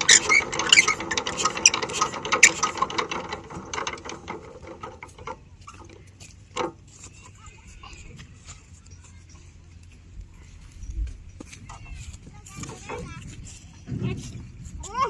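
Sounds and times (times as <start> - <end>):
mechanical ratcheting clatter: 0.0 - 6.0.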